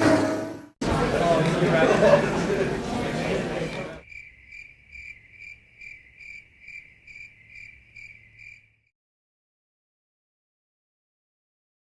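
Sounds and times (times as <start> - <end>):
cricket chirping: 4.0 - 8.9.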